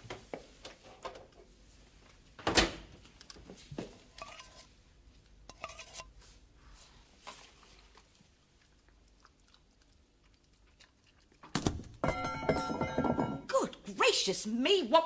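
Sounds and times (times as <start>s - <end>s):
dishes clinking and knocking: 12.0s - 13.5s.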